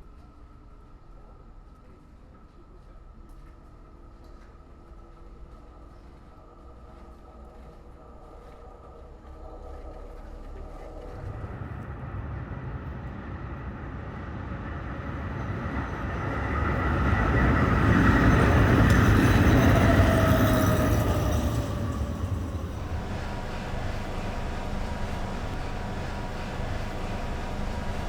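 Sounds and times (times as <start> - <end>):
train passing rumble: 0.0 - 28.0
falling whine: 18.4 - 28.0.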